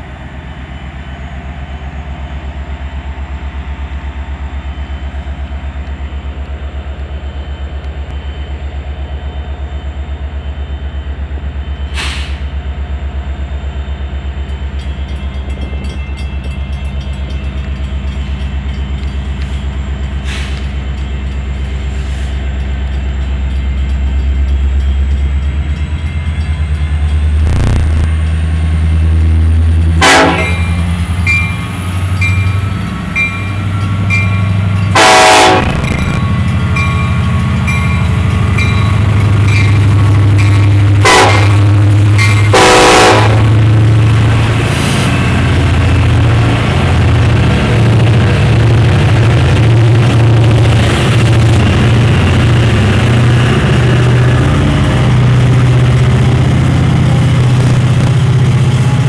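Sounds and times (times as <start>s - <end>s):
diesel locomotive rumble: 0.0s - 59.0s
train air horn blasts: 30.0s - 30.7s, 35.0s - 35.9s, 41.0s - 41.7s, 42.5s - 43.6s.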